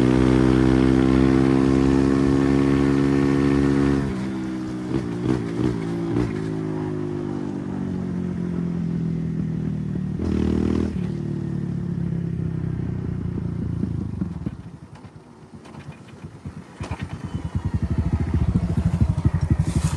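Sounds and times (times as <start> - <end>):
dirt bike engine revving: 16.4 - 19.9.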